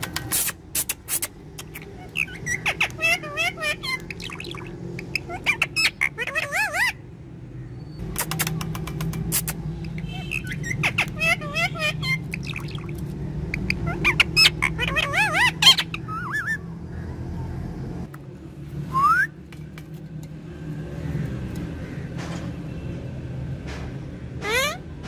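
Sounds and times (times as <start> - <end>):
parrot chattering and whistling: 0.1 - 7.0, 8.0 - 16.7.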